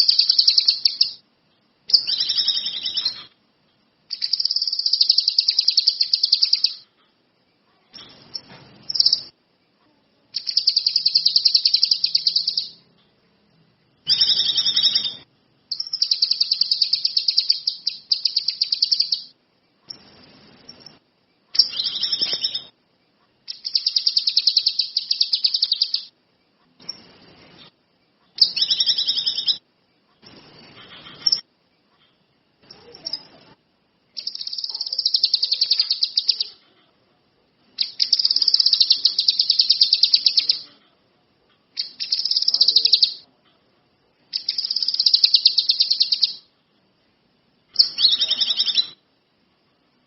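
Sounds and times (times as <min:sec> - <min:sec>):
songbird trilled chirps: 0:00.0 - 0:06.9, 0:07.9 - 0:09.4, 0:10.3 - 0:12.9, 0:14.0 - 0:22.8, 0:23.5 - 0:26.1, 0:28.3 - 0:29.6, 0:34.1 - 0:36.6, 0:37.8 - 0:40.7, 0:41.8 - 0:43.3, 0:44.3 - 0:46.5, 0:47.7 - 0:49.0.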